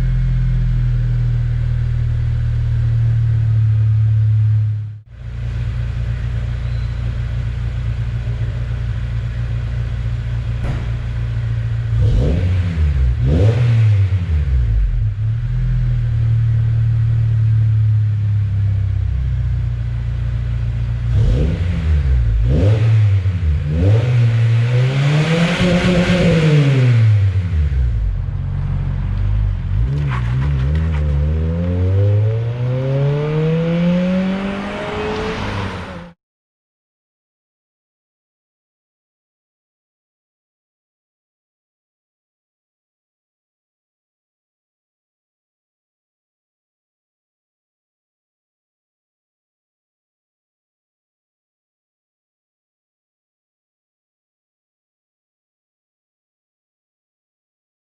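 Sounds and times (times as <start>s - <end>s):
car exhaust idling and revving: 0.0s - 35.0s.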